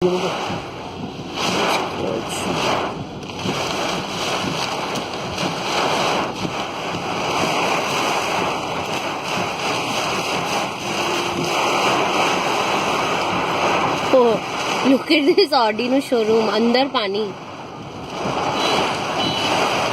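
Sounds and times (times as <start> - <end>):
rushing flood water: 0.0 - 19.9.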